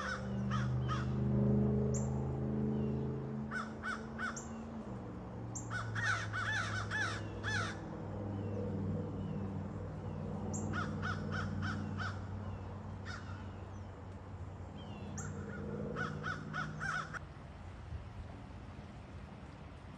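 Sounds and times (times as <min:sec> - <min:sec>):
crows cawing: 0:00.0 - 0:01.2, 0:03.5 - 0:04.6, 0:05.6 - 0:07.9, 0:10.6 - 0:12.4, 0:13.0 - 0:13.5, 0:15.2 - 0:17.2
low hum: 0:00.0 - 0:19.9.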